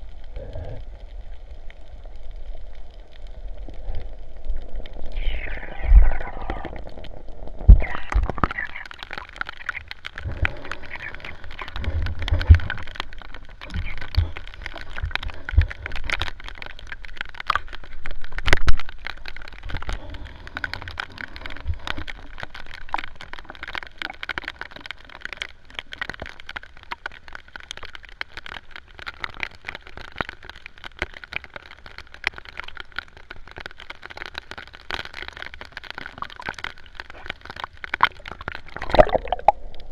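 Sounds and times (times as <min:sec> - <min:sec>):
rain falling on the sea: 0:00.0 - 0:39.9
low thumps and splashes: 0:38.1 - 0:39.9.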